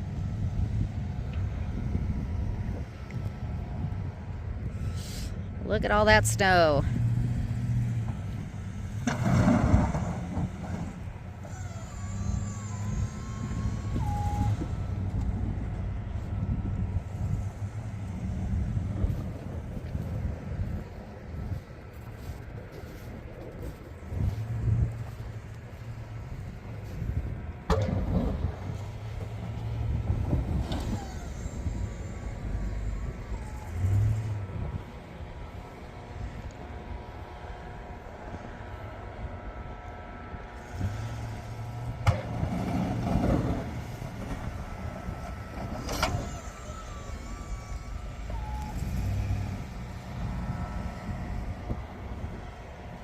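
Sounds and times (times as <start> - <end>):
truck engine running: 0.0 - 53.0.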